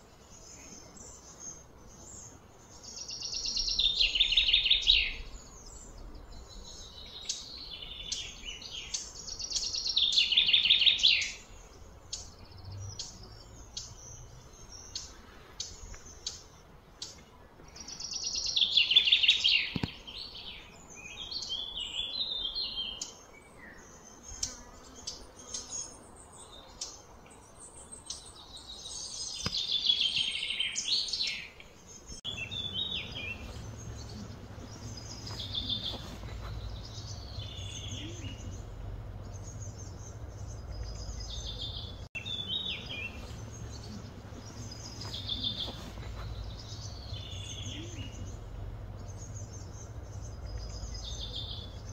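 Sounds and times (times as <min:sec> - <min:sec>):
birds chirping and warbling: 0:00.0 - 0:51.9
steady low hum: 0:31.8 - 0:51.9.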